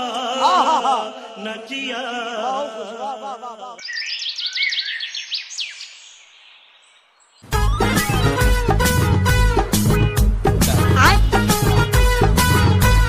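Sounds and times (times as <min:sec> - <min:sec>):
man's voice: 0:00.0 - 0:03.8, 0:10.5 - 0:12.0
birds chirping: 0:03.8 - 0:08.8.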